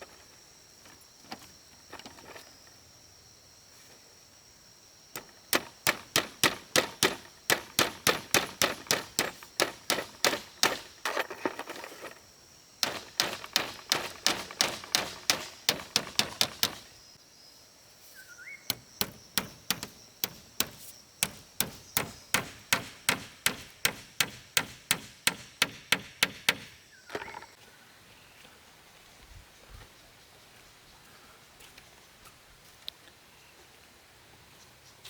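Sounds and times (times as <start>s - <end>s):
hand hammer striking: 5.2s - 11.2s, 12.8s - 16.9s, 18.7s - 26.7s.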